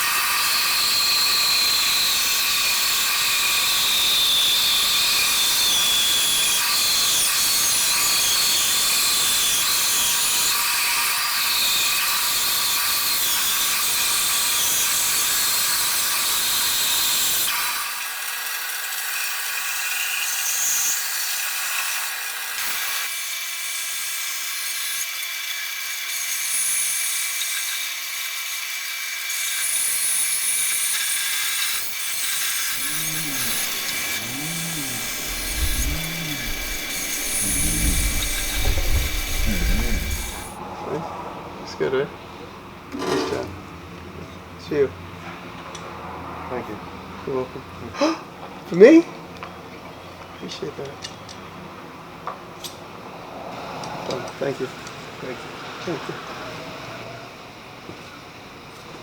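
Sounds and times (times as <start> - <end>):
power tool whining: 29.3 - 40.6
steady tones: 32.7 - 40.6.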